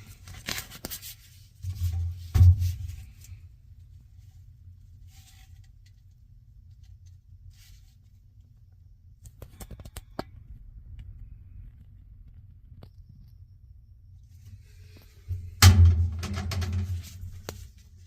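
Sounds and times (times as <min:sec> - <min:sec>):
washing machine hum: 0:14.3 - 0:18.0.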